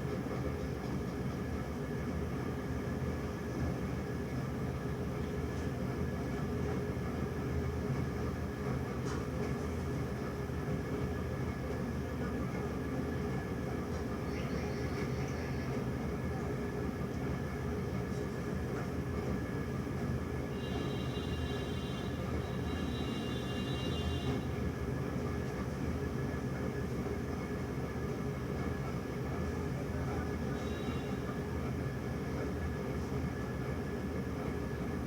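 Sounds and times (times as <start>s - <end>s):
faint high steady tone: 20.6s - 24.4s.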